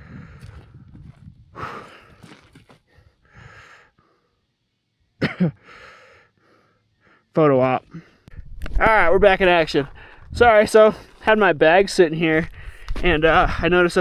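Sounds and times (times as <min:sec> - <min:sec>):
man breathing hard: 0:00.0 - 0:00.8, 0:01.5 - 0:04.5, 0:05.6 - 0:07.3, 0:09.9 - 0:10.3.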